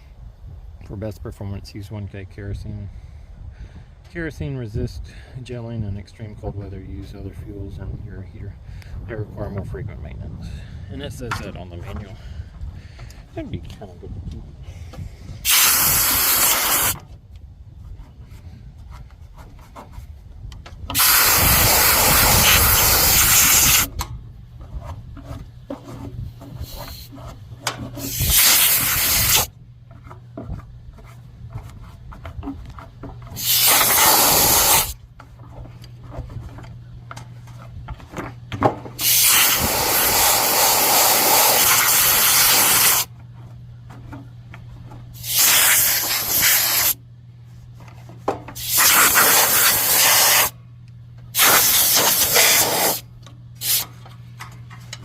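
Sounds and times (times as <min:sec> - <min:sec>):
steady low hum: 0:00.0 - 0:55.0
compressed air blow gun bursts: 0:15.4 - 0:17.0, 0:20.9 - 0:23.9, 0:26.5 - 0:27.1, 0:27.9 - 0:29.5, 0:33.3 - 0:35.0, 0:39.0 - 0:43.1, 0:45.2 - 0:47.0, 0:48.6 - 0:50.6, 0:51.3 - 0:53.0, 0:53.6 - 0:53.9.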